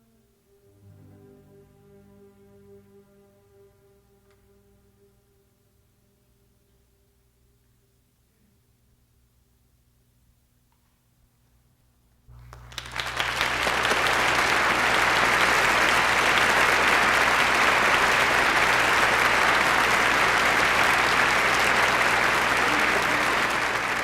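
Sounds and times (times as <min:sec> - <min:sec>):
audience applauding: 0:12.3 - 0:24.0.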